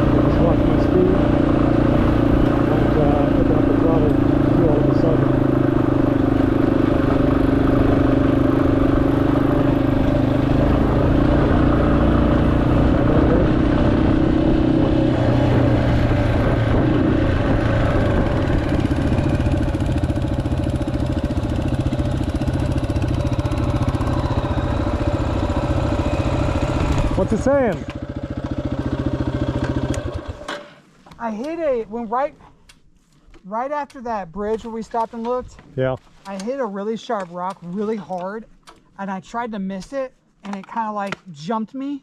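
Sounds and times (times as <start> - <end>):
motorcycle engine running: 0.0 - 30.5.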